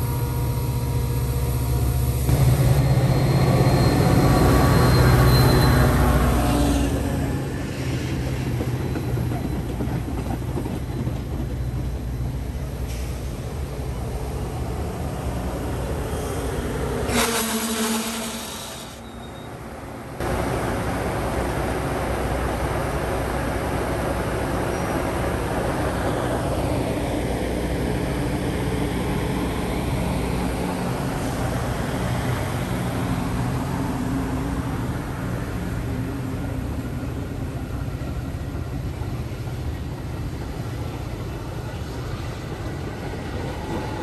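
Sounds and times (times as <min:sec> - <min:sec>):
diesel locomotive drone: 0:00.0 - 0:44.0
train wheels rumbling on rail: 0:00.0 - 0:44.0.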